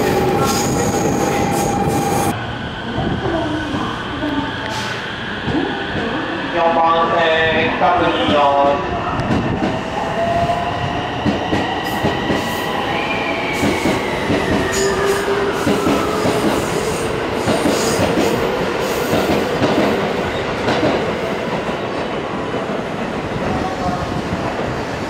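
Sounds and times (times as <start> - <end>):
train rumble: 0.0 - 6.3, 13.4 - 25.0
electric train whine: 0.0 - 21.6.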